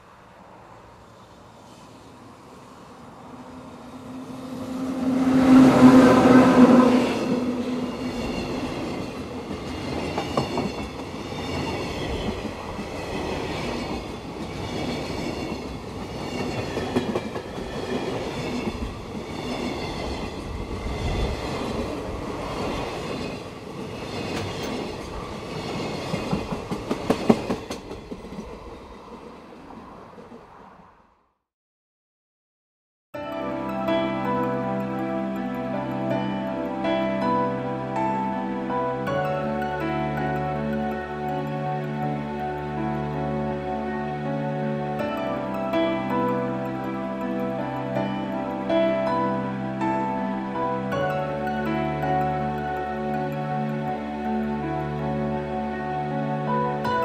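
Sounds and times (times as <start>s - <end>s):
locomotive horn blast: 3.7s - 8.5s
train wheels clickety-clack: 8.1s - 30.7s.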